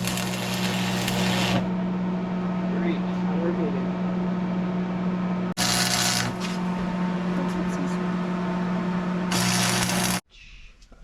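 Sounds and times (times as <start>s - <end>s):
welding arc crackle: 0.0s - 1.7s, 5.6s - 6.6s, 9.3s - 10.2s
electric welder humming: 0.0s - 1.9s, 5.6s - 7.3s, 8.2s - 10.3s.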